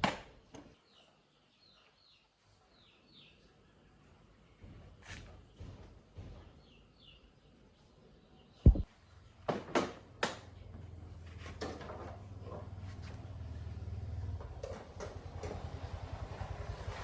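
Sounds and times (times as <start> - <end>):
heavy thump: 8.7 - 8.9.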